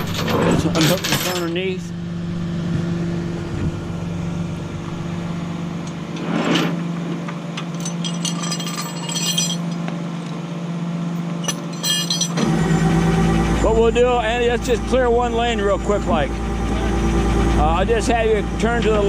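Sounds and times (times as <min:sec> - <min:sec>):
chains and hooks clinking: 0:00.0 - 0:01.7, 0:07.7 - 0:09.8, 0:11.2 - 0:12.5
engine idling hum: 0:00.0 - 0:19.0.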